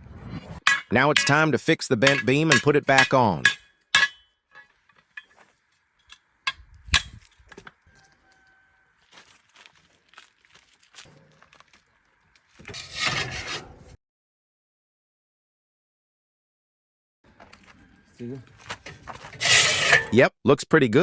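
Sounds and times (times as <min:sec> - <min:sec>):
metal rasping and scraping: 0:00.6 - 0:07.6, 0:12.6 - 0:14.0, 0:17.8 - 0:20.2.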